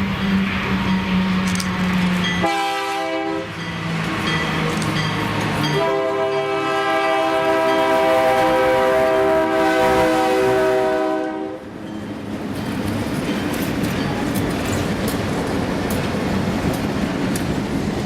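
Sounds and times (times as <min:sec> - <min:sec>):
locomotive air horn blasts: 0:02.4 - 0:03.6, 0:05.8 - 0:11.6.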